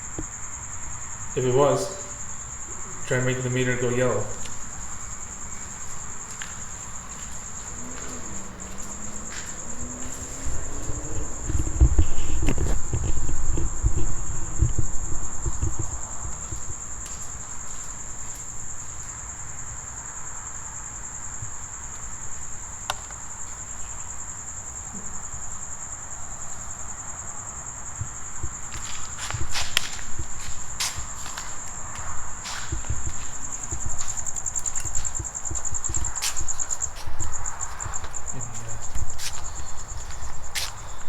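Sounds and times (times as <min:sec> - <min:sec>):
crickets trilling: 0:00.0 - 0:41.0
low thumps: 0:07.6 - 0:16.7.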